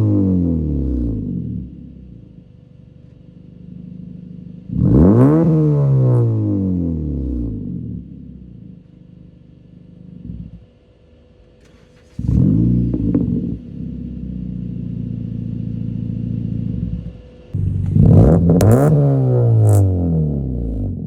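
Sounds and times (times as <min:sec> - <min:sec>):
car exhaust revving: 0:00.0 - 0:10.8, 0:12.0 - 0:21.0
exhaust cracks: 0:11.6 - 0:21.0.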